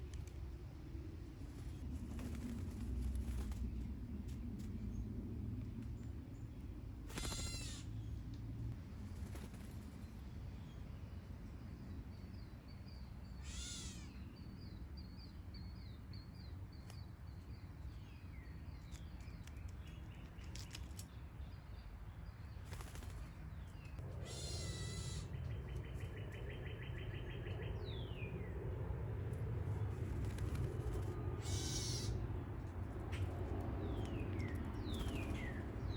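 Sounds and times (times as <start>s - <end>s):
steady low rumble: 0.0s - 13.4s, 14.1s - 35.9s
songbirds chirping: 0.0s - 35.9s
rapid bird trill: 7.1s - 7.9s, 31.4s - 32.2s
harsh scratchy bird calls: 7.1s - 8.0s, 13.4s - 14.3s, 22.4s - 27.6s, 30.2s - 32.4s.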